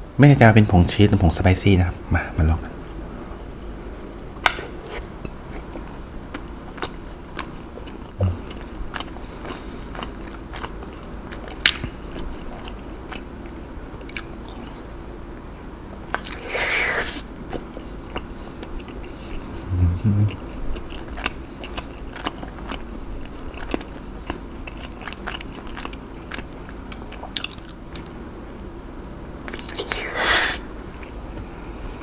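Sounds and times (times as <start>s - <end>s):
crunching and chewing batter: 5.2s - 15.0s, 16.1s - 16.7s, 20.3s - 28.2s, 29.4s - 30.1s.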